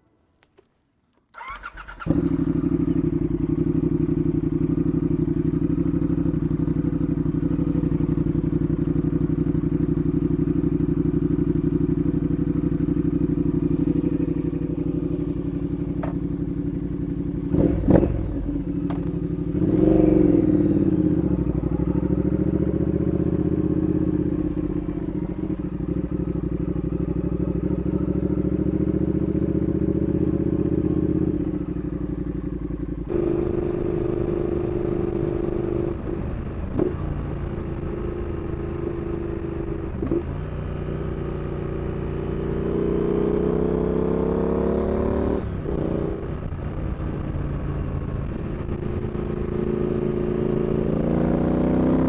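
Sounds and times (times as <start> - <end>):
motorcycle engine idling and revving: 1.3 - 52.0.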